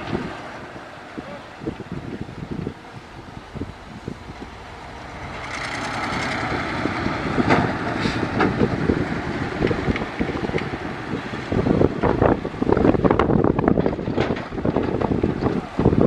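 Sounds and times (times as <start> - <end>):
heavy machinery engine running: 0.0 - 16.0.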